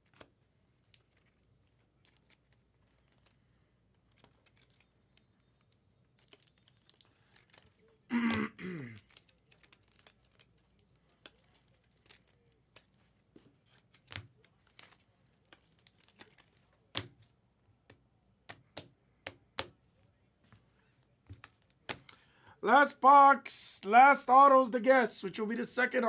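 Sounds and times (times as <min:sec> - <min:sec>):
packaging tearing and crinkling: 0:14.7 - 0:16.6.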